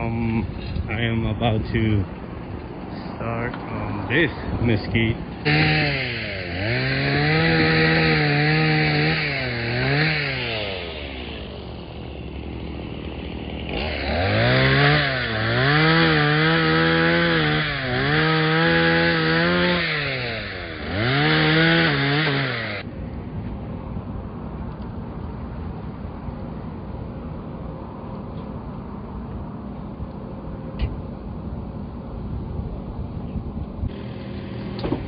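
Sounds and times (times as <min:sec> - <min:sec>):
gas-powered saw engine revving: 0:05.4 - 0:22.9, 0:33.9 - 0:35.0.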